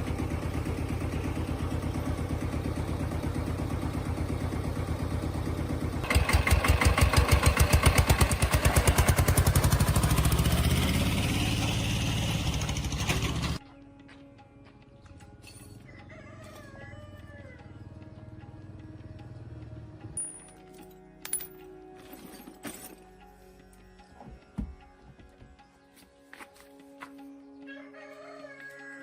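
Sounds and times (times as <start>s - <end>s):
tractor engine idling and revving: 0.0s - 13.6s, 15.1s - 20.3s.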